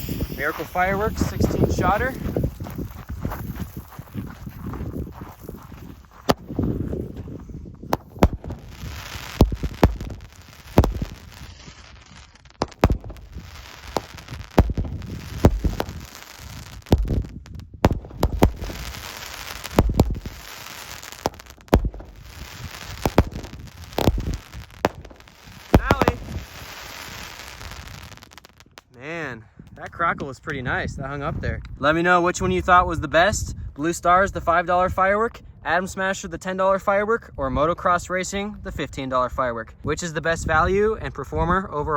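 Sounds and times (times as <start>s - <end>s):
fireworks launch thumps and bursts: 0.0s - 3.8s, 6.2s - 28.9s
fireworks crackle: 0.0s - 29.1s.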